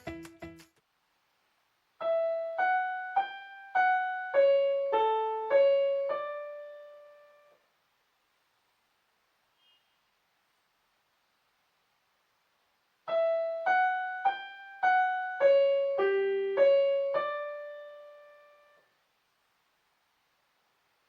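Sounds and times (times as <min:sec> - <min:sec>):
piano melody single notes: 0:02.0 - 0:07.6, 0:13.1 - 0:18.8.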